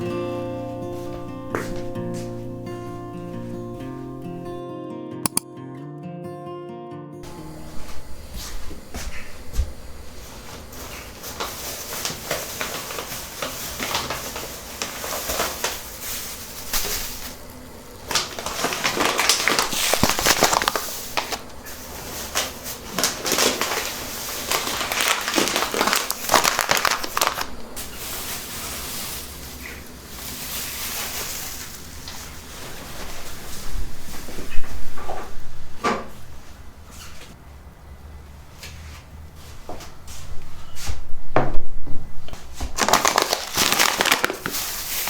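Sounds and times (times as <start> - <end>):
crinkling rustling handling noise: 8.5 - 34.9, 42.4 - 45.0.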